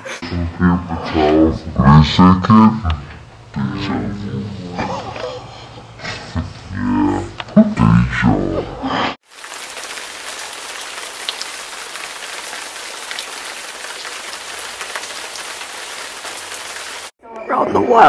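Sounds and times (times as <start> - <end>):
steady rain: 9.2 - 17.1.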